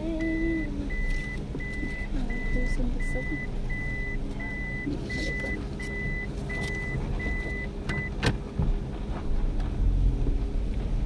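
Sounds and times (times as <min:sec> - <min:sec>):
car warning beeps: 0:00.0 - 0:08.4
car running rumble: 0:00.0 - 0:11.0.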